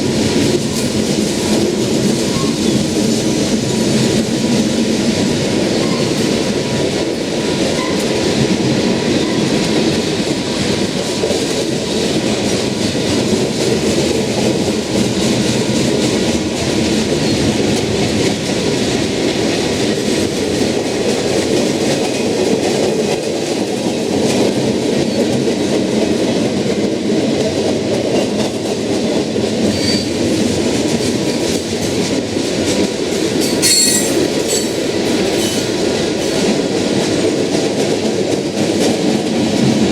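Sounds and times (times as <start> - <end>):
freight train cars rolling: 0.0 - 39.9
high wheel squeal: 33.4 - 34.7.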